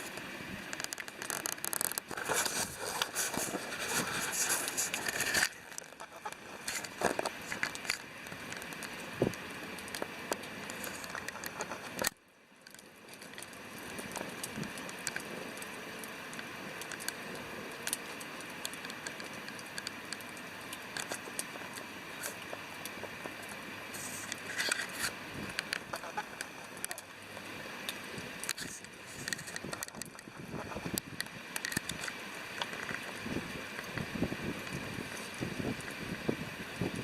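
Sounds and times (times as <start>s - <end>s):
campfire crackling and popping: 0.0s - 37.0s
river rushing: 13.0s - 37.0s.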